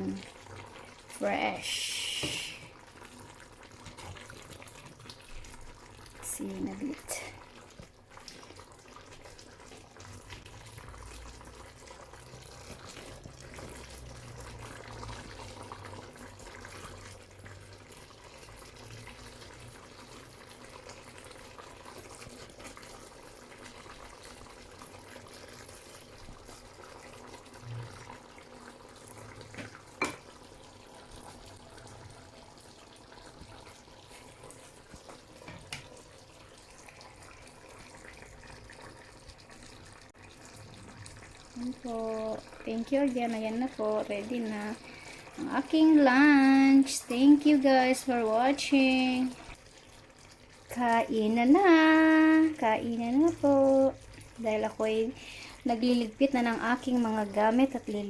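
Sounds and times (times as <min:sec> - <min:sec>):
running water hiss: 0:01.1 - 0:02.8.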